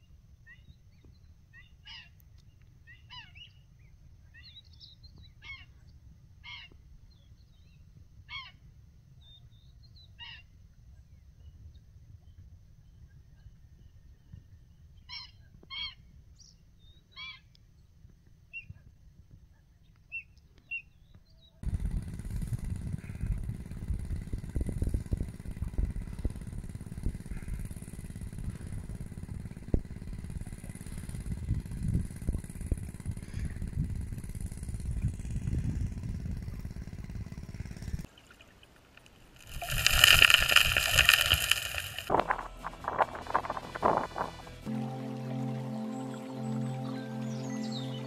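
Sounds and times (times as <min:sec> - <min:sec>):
loud low rumbling: 0:21.6 - 0:38.1, 0:39.5 - 0:47.8
music: 0:42.1 - 0:48.0
birds calling: 0:45.7 - 0:48.0.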